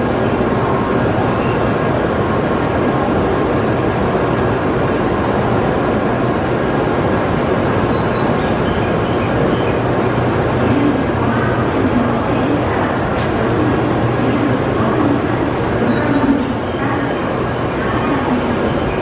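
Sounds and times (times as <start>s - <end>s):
busy station background noise: 0.0s - 19.0s
faint voices: 10.0s - 19.0s.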